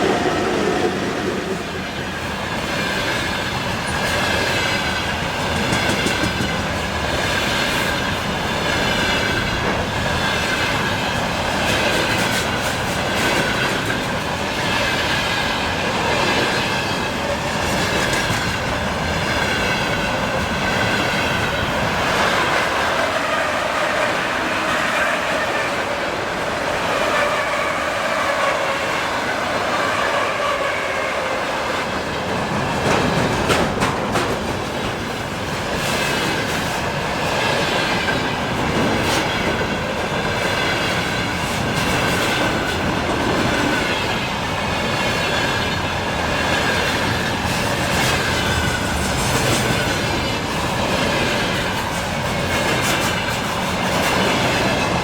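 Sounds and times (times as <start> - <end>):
freight train wheels rumbling: 0.0 - 55.0
wheels clacking over rail joints: 1.7 - 25.4, 32.0 - 44.2.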